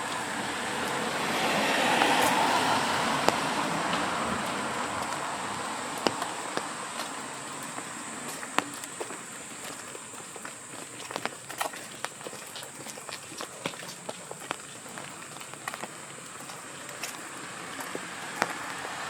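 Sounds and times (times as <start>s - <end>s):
car tyres hissing on wet street: 0.0s - 10.0s, 15.0s - 19.0s.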